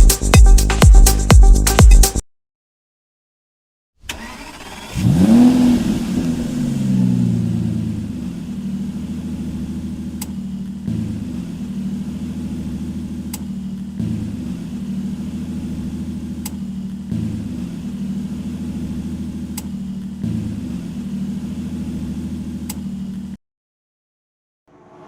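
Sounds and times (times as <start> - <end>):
car engine starting and idling: 4.0 - 23.4.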